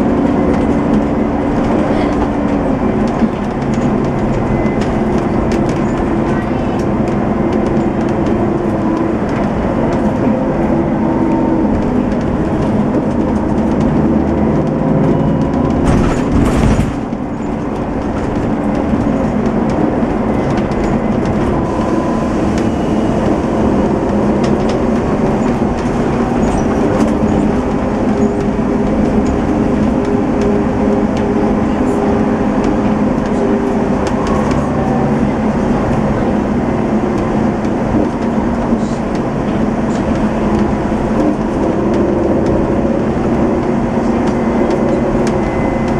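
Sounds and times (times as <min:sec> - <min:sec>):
coach diesel engine running: 0:00.0 - 0:45.9.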